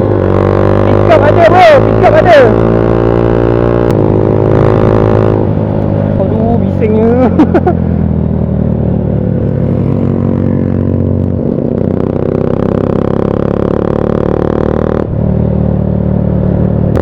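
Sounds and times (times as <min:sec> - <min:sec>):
loud motorcycle engine revving: 0:00.0 - 0:17.0.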